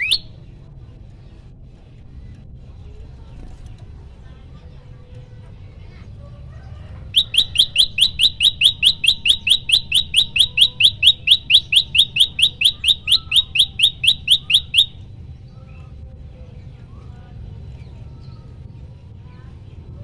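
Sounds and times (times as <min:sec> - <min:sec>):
bird calling sharp upslurred notes: 0:00.0 - 0:00.3, 0:07.2 - 0:15.0
faint low rumble: 0:00.0 - 0:20.0.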